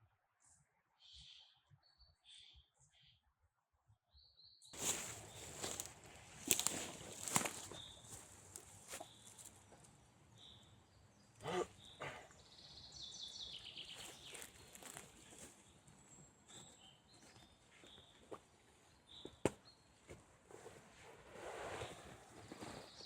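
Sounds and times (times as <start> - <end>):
songbirds calling: 0.4 - 3.2, 4.2 - 20.1
footsteps on forest floor: 4.8 - 9.9, 13.7 - 20.8.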